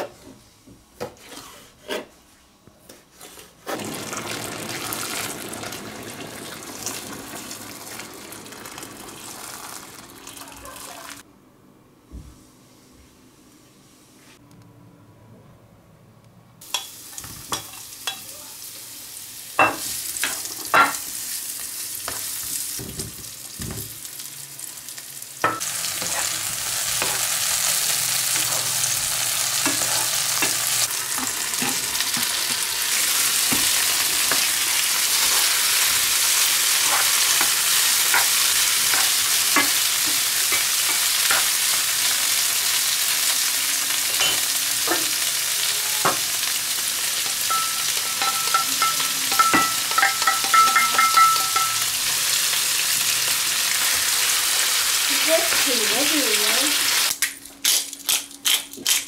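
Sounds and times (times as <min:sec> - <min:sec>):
food frying in hot oil: 0:03.7 - 0:11.2, 0:16.6 - 0:57.2
spatula clicking and scraping pan: 0:36.8 - 0:41.6.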